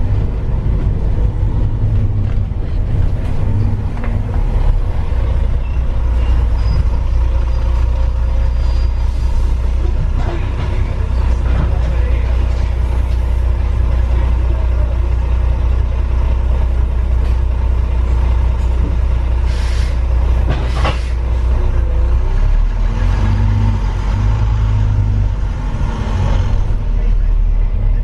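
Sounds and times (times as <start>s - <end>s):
diesel engine rumbling: 0.0s - 28.0s
short air hisses: 19.5s - 20.0s.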